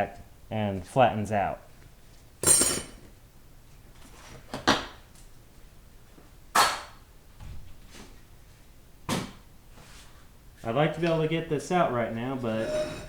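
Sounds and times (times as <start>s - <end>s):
metal parts clanking on workbench: 2.4s - 3.1s, 12.5s - 13.0s.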